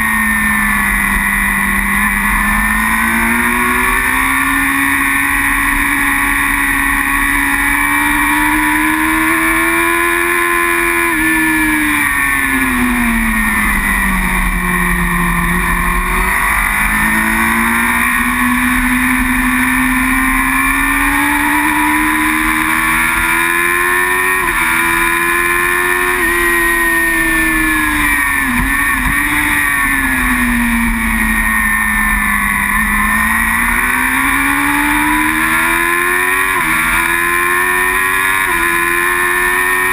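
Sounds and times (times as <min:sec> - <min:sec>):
racing motorcycle engine revving: 0:00.0 - 0:39.9
steady rushing noise: 0:00.0 - 0:39.9.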